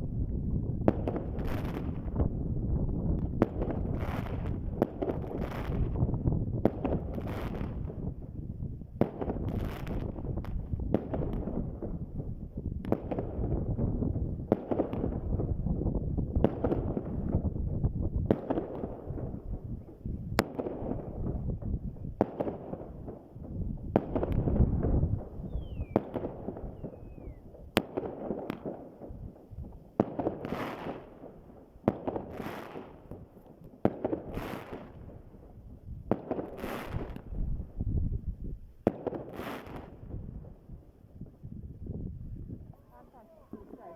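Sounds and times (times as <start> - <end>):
firework bangs: 0.7 - 8.4, 9.0 - 37.9, 38.8 - 40.7
firework crackling bursts: 3.2 - 15.6, 18.2 - 37.8, 38.8 - 40.7.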